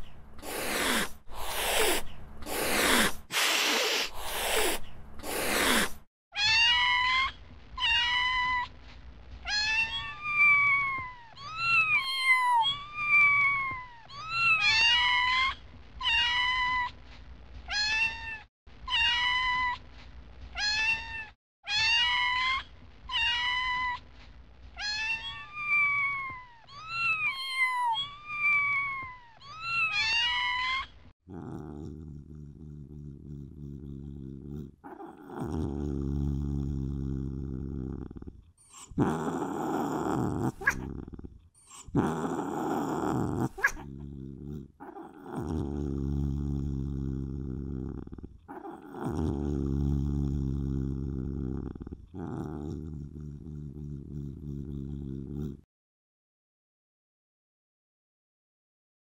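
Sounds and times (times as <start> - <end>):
cat hissing: 0.0 - 6.1, 31.3 - 47.0, 47.6 - 55.6
cat meowing cries: 6.4 - 8.7, 9.5 - 16.9, 17.7 - 19.8, 20.6 - 24.0, 24.8 - 31.0.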